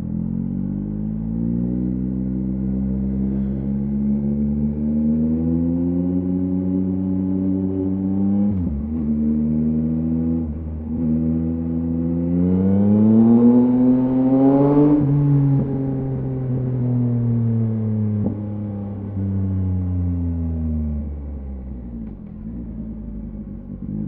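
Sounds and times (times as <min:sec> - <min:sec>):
motorcycle engine revving: 0:00.0 - 0:19.3.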